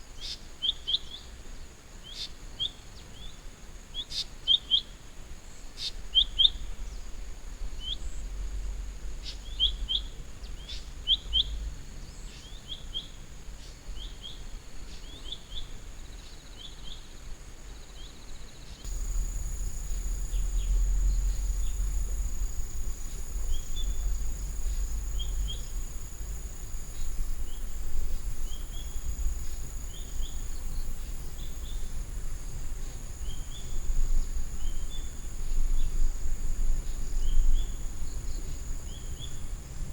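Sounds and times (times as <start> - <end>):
birds chirping: 18.9 - 32.2
low rumble: 18.9 - 34.9
high insect drone: 18.9 - 39.9.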